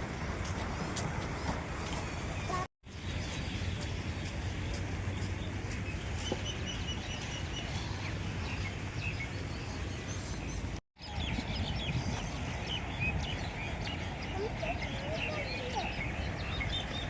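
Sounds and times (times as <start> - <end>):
small birds chirping: 1.4 - 10.8.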